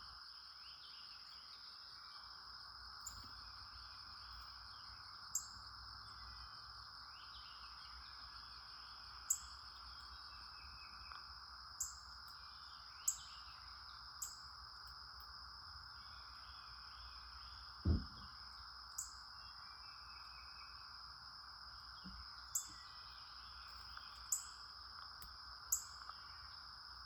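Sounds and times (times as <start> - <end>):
crickets trilling: 0.0 - 27.0
knock: 17.8 - 18.3.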